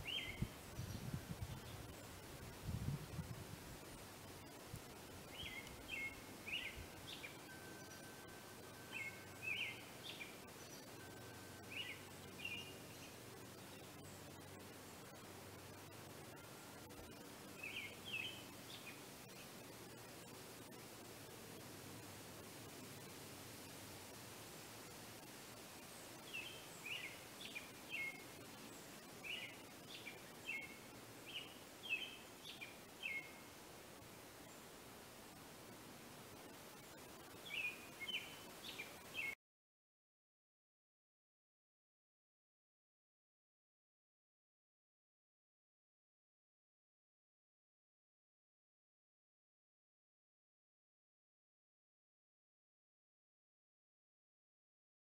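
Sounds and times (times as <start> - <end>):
bird chirping: 0.0 - 2.2, 5.2 - 15.2, 16.2 - 20.2, 25.8 - 33.5, 37.2 - 39.4
faint outdoor background noise: 0.0 - 39.4
faint steady hiss: 0.0 - 39.4.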